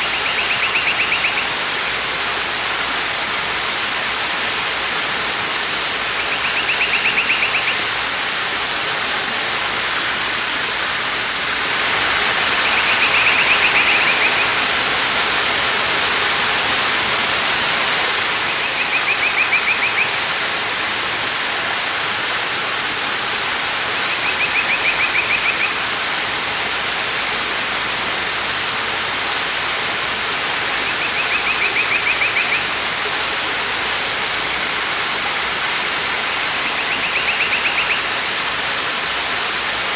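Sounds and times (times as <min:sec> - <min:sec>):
waterfall rushing: 0:00.0 - 0:39.9
small bird rapid trill: 0:06.3 - 0:07.8.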